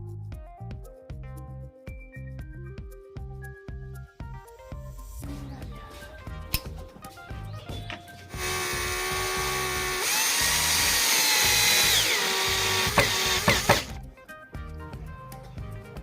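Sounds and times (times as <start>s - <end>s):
power tool motor whining: 8.2s - 14.0s.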